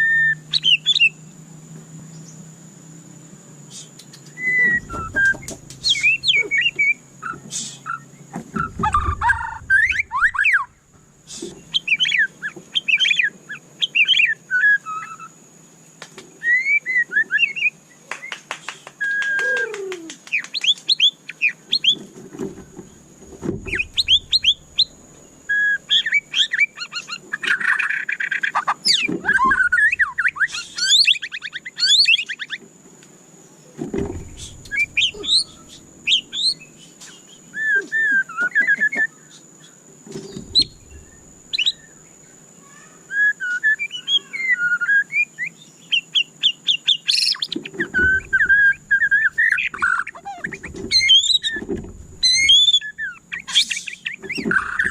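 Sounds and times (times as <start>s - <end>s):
bird singing whistled phrases: 0.0s - 1.2s, 3.7s - 15.4s, 16.4s - 22.0s, 23.6s - 32.6s, 34.3s - 42.0s, 42.7s - 54.9s
faint steady high whine: 0.0s - 54.9s
low thuds: 4.5s - 6.2s, 8.4s - 11.1s, 22.4s - 25.3s, 33.8s - 36.7s, 40.1s - 41.9s, 47.9s - 49.2s, 50.5s - 52.5s.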